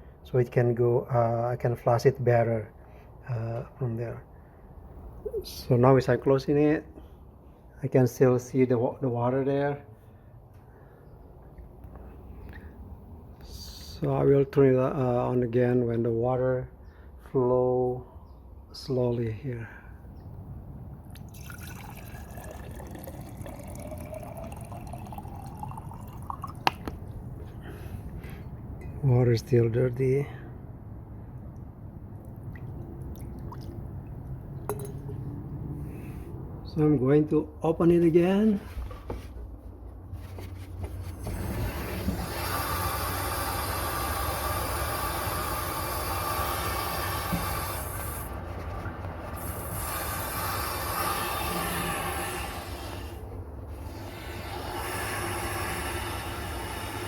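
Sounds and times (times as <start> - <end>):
water draining from valve: 21.1 - 27.1, 41.3 - 48.4, 49.4 - 57.0.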